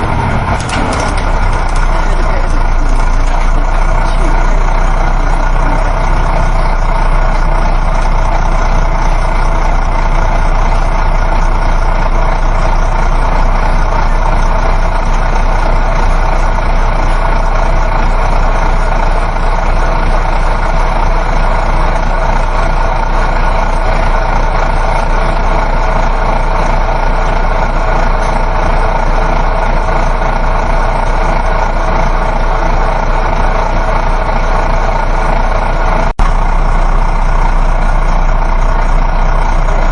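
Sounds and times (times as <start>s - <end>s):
bus engine drone: 0.0s - 39.9s
road and tyre noise: 0.0s - 39.9s.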